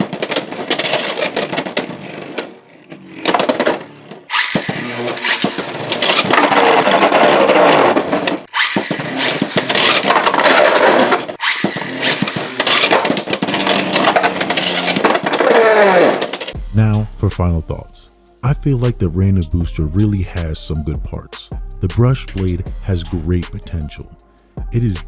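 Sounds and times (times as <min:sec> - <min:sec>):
spinning tops clashing and grinding: 0:00.0 - 0:16.6.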